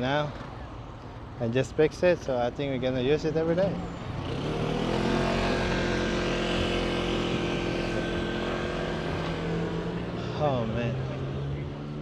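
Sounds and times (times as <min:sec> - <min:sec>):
small engine droning: 0:02.9 - 0:12.0.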